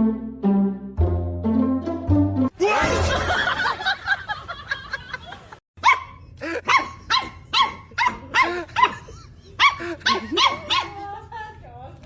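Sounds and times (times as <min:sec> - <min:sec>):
dog barking: 0:05.8 - 0:11.0.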